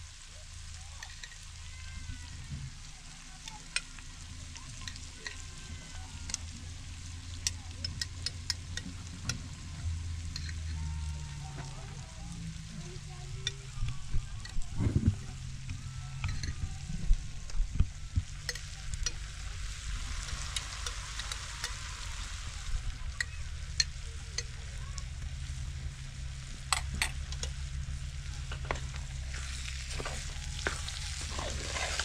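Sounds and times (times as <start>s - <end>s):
potatoes sizzling in oil: 0.0s - 32.0s
oil popping: 26.6s - 32.0s
spatula scraping pan: 28.7s - 32.0s.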